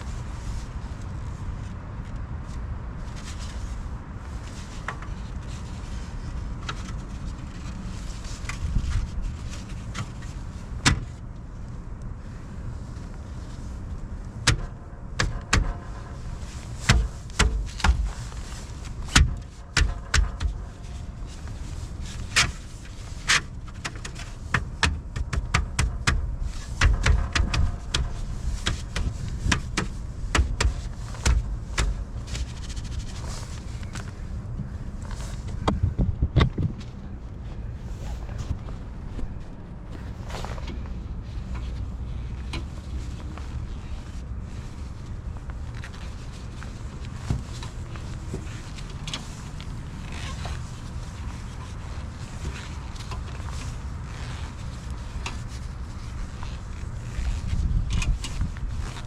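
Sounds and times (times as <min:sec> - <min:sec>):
knocks and clunks of metal and tires: 0:14.2 - 0:43.2
low rumble: 0:27.2 - 0:42.8.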